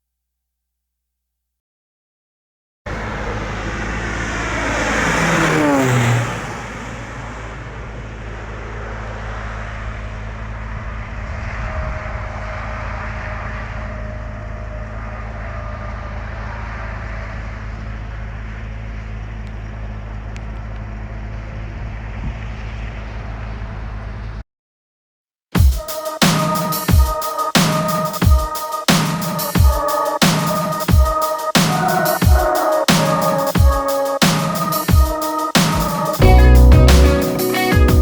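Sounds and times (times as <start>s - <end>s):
falling pitch sweep: 2.9s - 9.2s, 34.2s - 38.0s
heavy machine engine humming: 2.9s - 24.3s.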